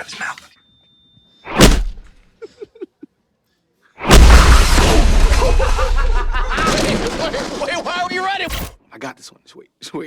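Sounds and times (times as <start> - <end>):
loud boom: 4.0 - 7.5.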